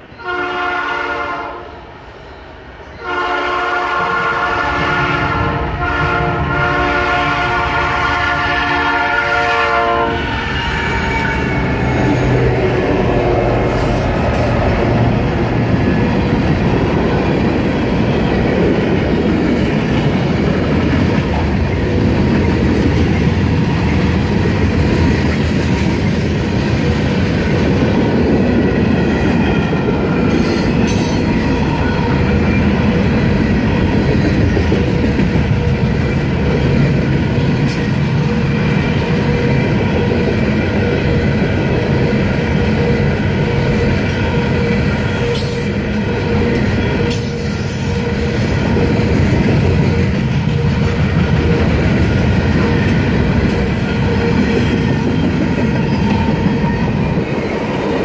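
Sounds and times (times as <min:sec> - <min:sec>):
locomotive horn blasts: 0:00.2 - 0:01.8, 0:03.0 - 0:14.8
locomotives rumbling past: 0:09.7 - 0:58.0.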